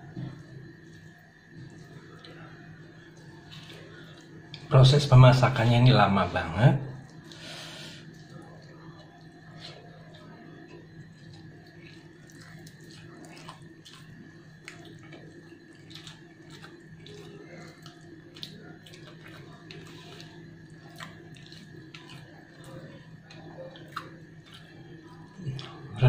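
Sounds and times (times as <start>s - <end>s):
steady low hum: 0.0s - 26.0s
chewing and wet mouth clicks: 8.1s - 25.9s.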